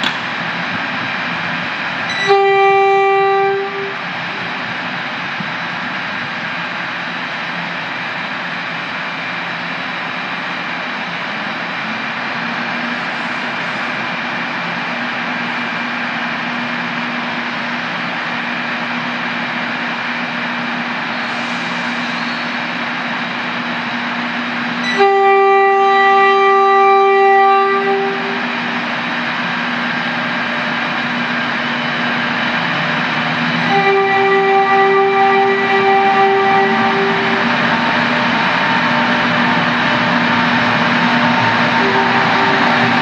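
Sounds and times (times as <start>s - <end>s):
passenger train rumbling: 0.0s - 43.0s
train horn blast: 2.1s - 4.1s, 24.8s - 28.7s, 33.6s - 37.6s, 41.7s - 43.0s.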